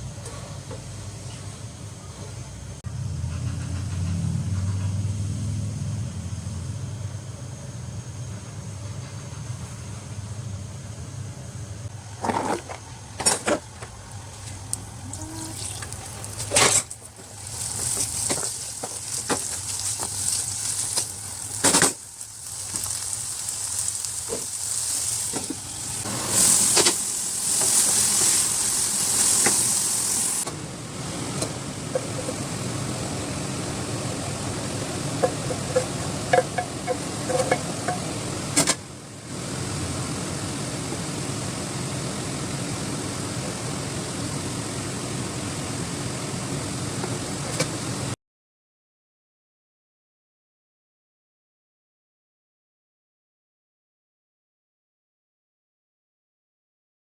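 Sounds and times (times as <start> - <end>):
food sizzling in a pan: 15.0 - 30.4
spatula knocking against pan: 35.2 - 38.1.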